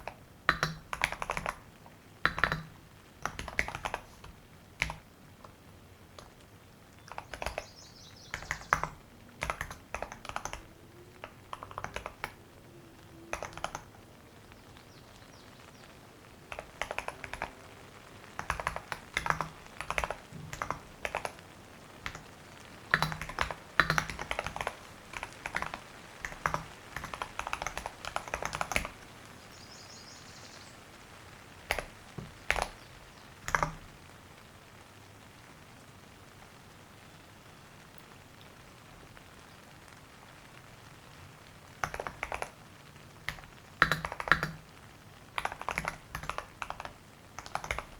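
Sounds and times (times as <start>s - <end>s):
keyboard typing: 0.0s - 6.4s, 7.0s - 7.7s, 8.3s - 12.4s, 13.3s - 14.0s, 16.5s - 17.6s, 18.3s - 29.0s, 31.7s - 32.8s, 33.4s - 33.9s, 41.8s - 42.6s, 43.2s - 44.7s, 45.4s - 47.9s.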